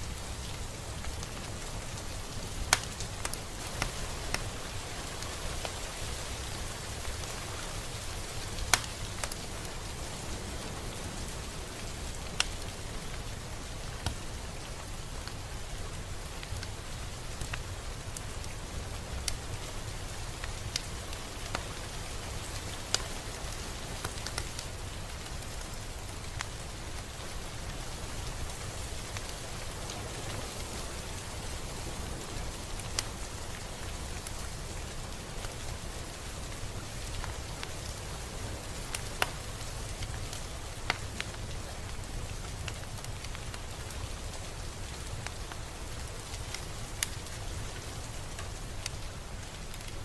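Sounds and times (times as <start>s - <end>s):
raindrops ticking close by: 0.0s - 50.0s
steady rain hiss: 0.0s - 50.0s.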